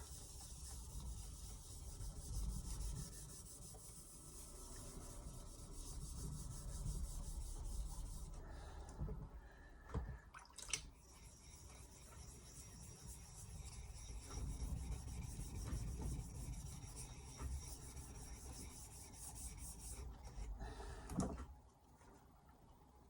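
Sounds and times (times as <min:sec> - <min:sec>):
knife scraping on whetstone: 0:11.0 - 0:20.3.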